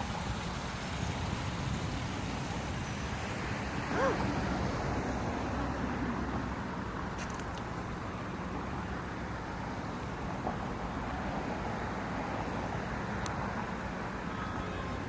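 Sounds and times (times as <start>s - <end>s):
water falling over rocks: 0.0s - 3.8s.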